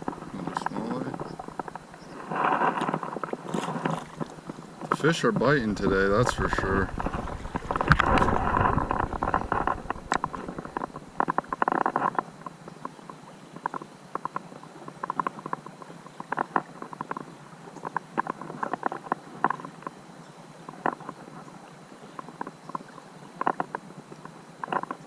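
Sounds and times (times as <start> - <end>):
creek water splashing: 0.0 - 25.0
low rumble: 5.5 - 11.5.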